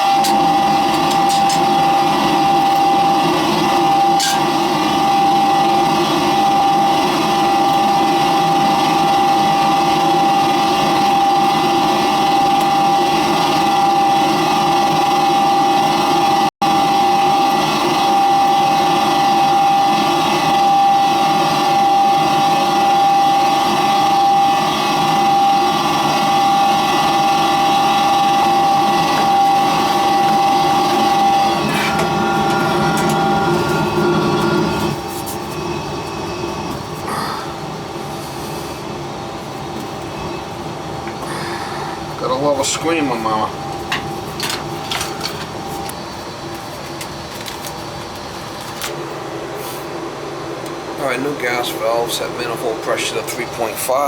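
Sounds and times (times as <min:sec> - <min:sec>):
furnace high-pitched whine: 0:00.0 - 0:54.0
furnace rushing noise: 0:27.0 - 0:36.0, 0:38.8 - 0:50.1.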